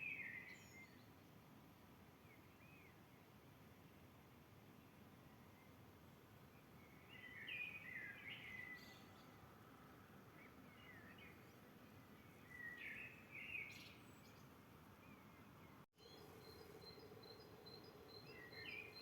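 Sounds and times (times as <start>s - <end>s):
songbird chirping: 0.0s - 1.4s, 5.2s - 19.0s
steady low hiss: 13.2s - 19.0s.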